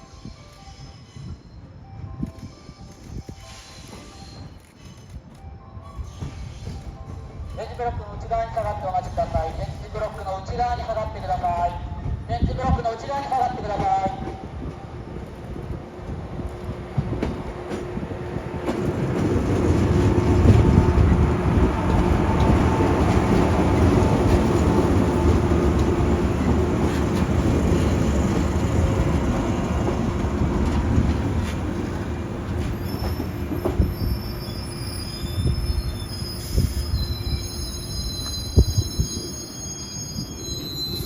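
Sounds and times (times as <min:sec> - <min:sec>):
electric train rolling: 0:13.1 - 0:41.0
high wheel squeal: 0:32.6 - 0:41.0.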